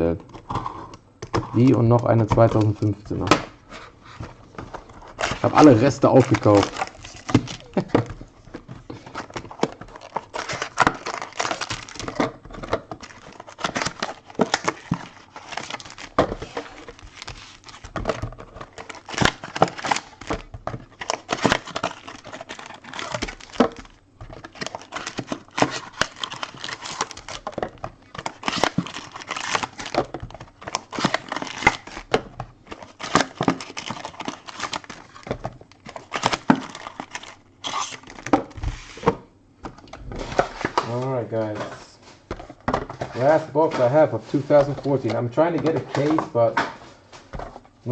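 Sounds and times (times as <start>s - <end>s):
plastic wrapping crinkling and tearing: 4.5s - 38.6s, 43.2s - 47.1s.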